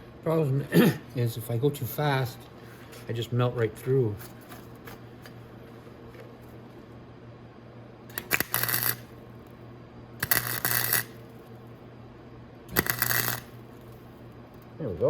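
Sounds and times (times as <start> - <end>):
steady low hum: 0.0 - 15.0
welding arc crackling: 8.1 - 9.2, 10.2 - 11.5, 12.7 - 14.1.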